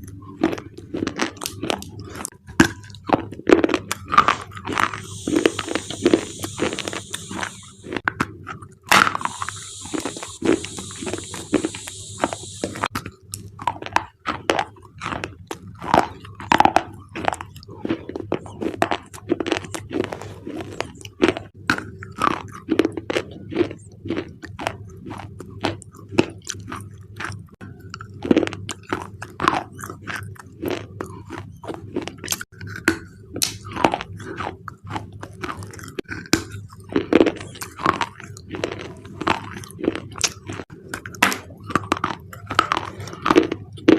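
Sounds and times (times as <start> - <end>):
crunching and chewing: 0.0 - 43.9
brief hiss: 5.1 - 7.9, 9.3 - 12.9.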